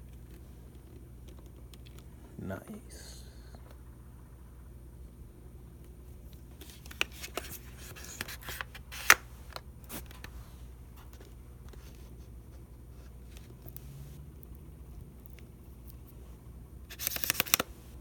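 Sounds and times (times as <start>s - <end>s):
packaging rustling: 6.4s - 10.3s.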